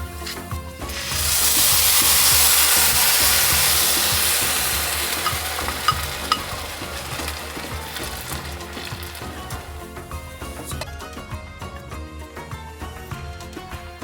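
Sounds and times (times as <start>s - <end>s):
food sizzling in a pan: 0.0s - 10.8s.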